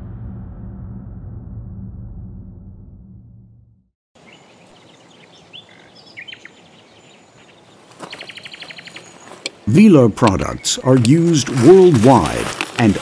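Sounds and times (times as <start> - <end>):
birds chirping: 4.2 - 13.0
steady outdoor hiss: 4.2 - 13.0.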